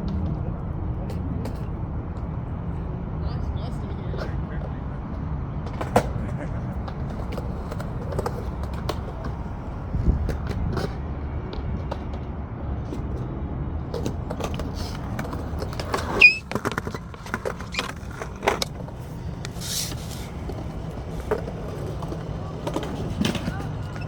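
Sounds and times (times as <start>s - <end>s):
skateboard wheels rolling on concrete: 0.0s - 3.2s, 4.0s - 24.0s
skateboard clacks and knocks: 5.6s - 12.3s, 20.4s - 24.0s
brief high squeak: 16.1s - 17.0s, 17.7s - 18.0s.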